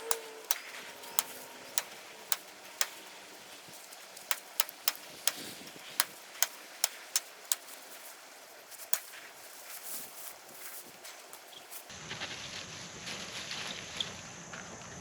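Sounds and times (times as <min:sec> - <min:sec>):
sharp short clicks: 0:00.0 - 0:08.0
background hiss: 0:00.0 - 0:14.4.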